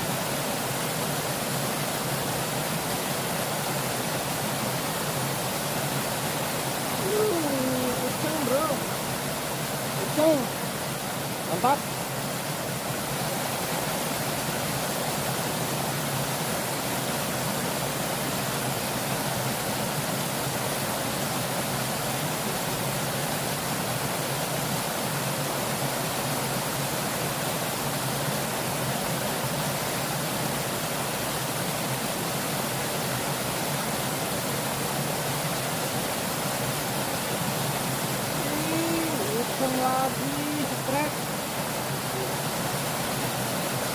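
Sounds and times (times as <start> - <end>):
river water rushing: 0.0 - 43.9.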